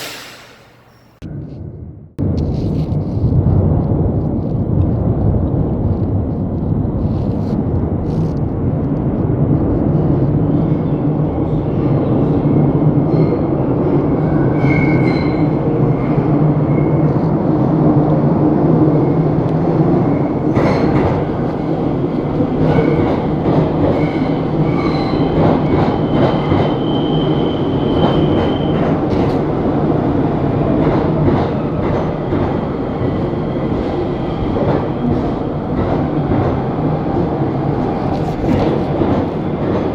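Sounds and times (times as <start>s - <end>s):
high-pitched squeals: 0.0s - 1.2s
subway train rumbling on rails: 0.0s - 39.9s.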